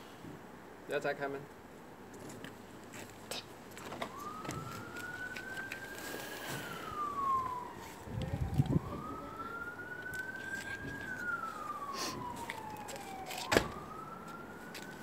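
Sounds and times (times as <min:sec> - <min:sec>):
emergency siren wailing: 0:03.8 - 0:15.0.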